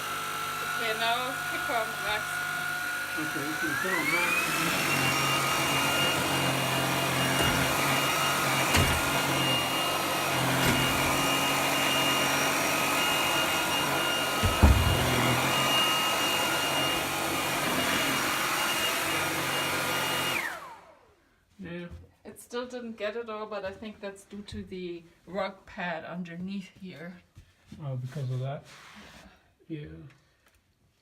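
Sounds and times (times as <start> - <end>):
vacuum motor whine: 0.0 - 21.2
short knocks: 14.4 - 15.3.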